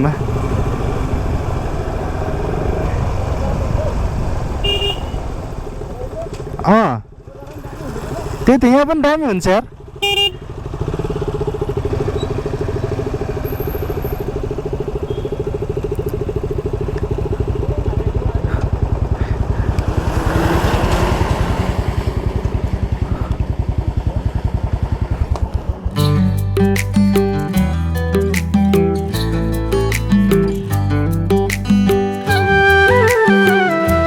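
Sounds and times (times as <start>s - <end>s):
wind or road noise: 0.0s - 26.0s
motorcycle engine running: 9.6s - 28.2s
music: 26.0s - 34.0s.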